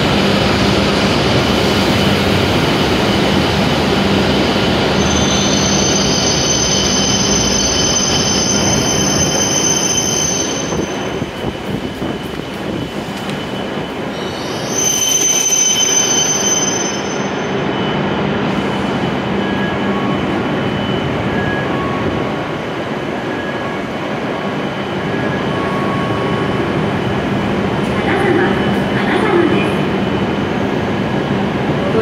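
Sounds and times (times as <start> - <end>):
standing train humming: 0.0 - 32.0
high brake squeal: 4.9 - 11.3, 12.7 - 22.2.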